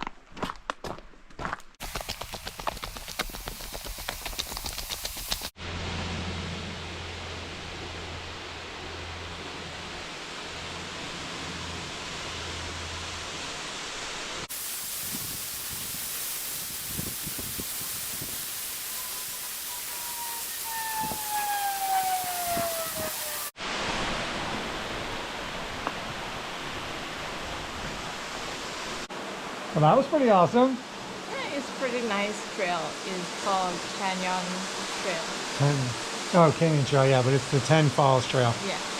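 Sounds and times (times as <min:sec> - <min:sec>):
waterfall rushing: 0:07.4 - 0:30.4
whistle-like gliding tone: 0:18.7 - 0:23.5.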